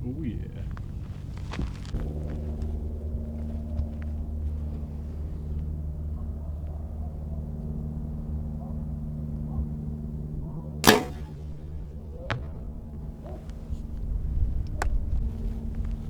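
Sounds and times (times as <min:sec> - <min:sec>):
steady low hum: 0:10.6 - 0:14.6
bow string release: 0:10.8 - 0:11.6.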